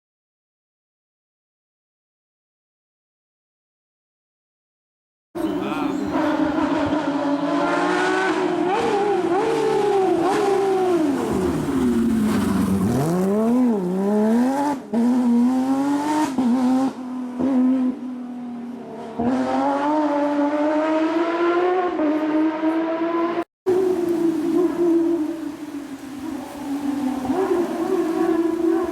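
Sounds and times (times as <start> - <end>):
rally car engine revving: 5.4 - 25.7, 26.3 - 28.9.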